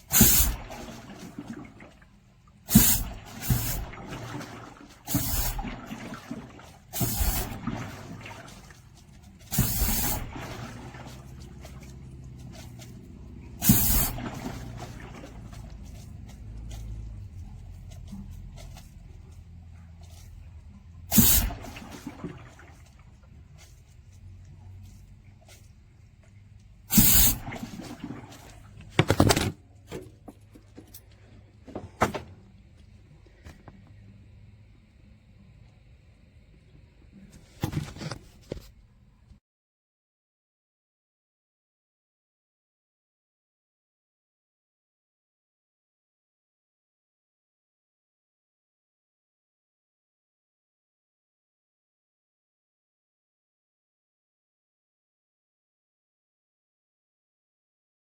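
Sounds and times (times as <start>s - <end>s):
water trickling: 0.0s - 28.9s
water and air gushing through drain: 0.0s - 39.0s.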